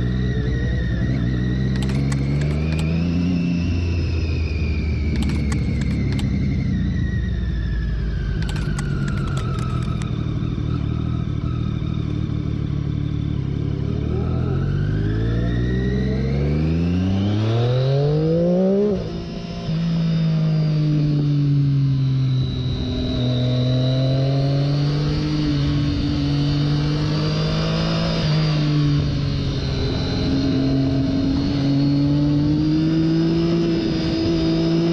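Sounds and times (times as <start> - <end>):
motorcycle engine accelerating: 0.3 - 4.1, 5.1 - 6.4
gear upshift: 1.8 - 3.1, 5.1 - 6.4, 8.4 - 10.1.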